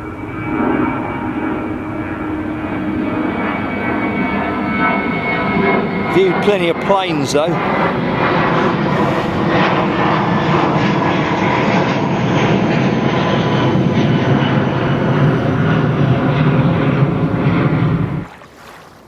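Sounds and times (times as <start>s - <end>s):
plane engine roar: 0.0s - 19.0s.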